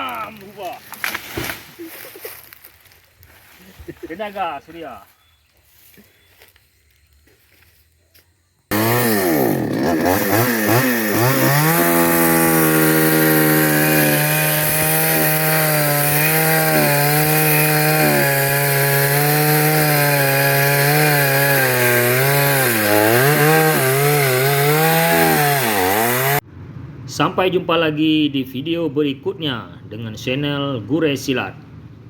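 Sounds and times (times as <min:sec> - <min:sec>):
chainsaw cutting wood: 0:08.7 - 0:26.4.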